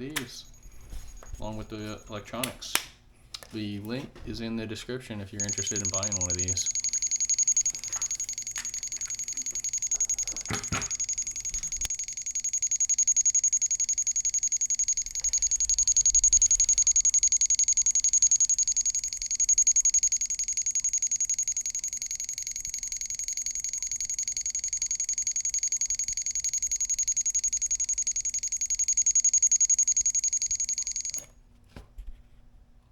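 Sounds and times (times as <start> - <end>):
high-pitched electronic beeps: 5.4 - 31.2.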